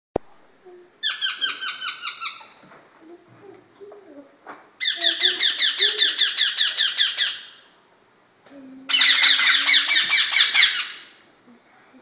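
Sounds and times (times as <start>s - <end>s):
parakeet chicks squawking: 1.0s - 2.6s, 4.8s - 7.8s, 8.9s - 11.2s.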